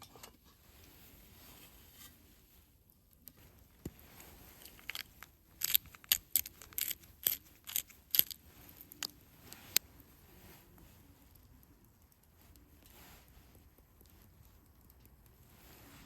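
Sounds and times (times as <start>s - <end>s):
sharp clicks and crunches: 2.9s - 9.8s.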